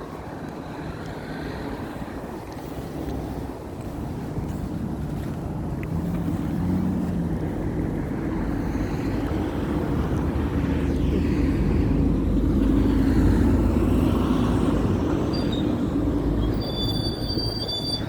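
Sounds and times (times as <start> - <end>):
passing vehicle rumble: 0.0 - 18.0
high-pitched squeal: 16.4 - 18.0.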